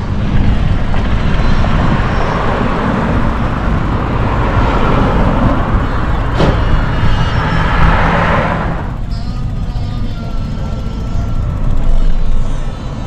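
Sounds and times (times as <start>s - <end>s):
road noise from bicycle: 0.0s - 13.0s.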